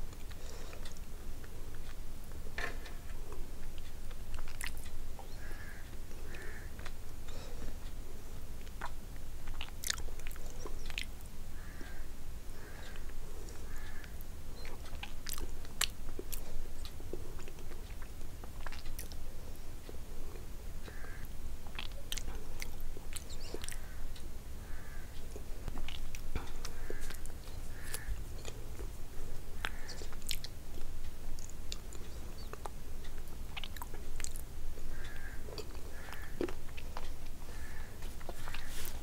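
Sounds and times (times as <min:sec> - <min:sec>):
wet chewing and lip smacks: 0:03.3 - 0:05.0, 0:08.6 - 0:11.2, 0:14.6 - 0:19.2, 0:21.6 - 0:23.9, 0:25.3 - 0:39.0.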